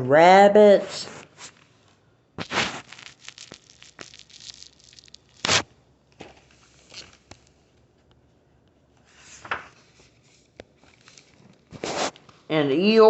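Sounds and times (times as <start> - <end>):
book pages turning: 2.4 - 7.6, 9.0 - 12.4.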